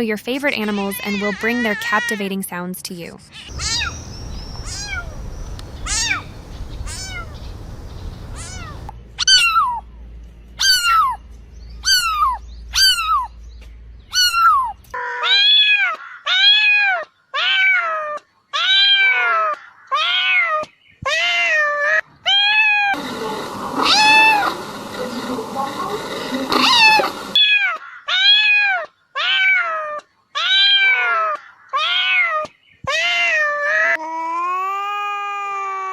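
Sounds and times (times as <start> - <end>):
cats meowing: 3.4 - 9.8, 14.1 - 21.6, 22.3 - 24.9, 26.0 - 34.0.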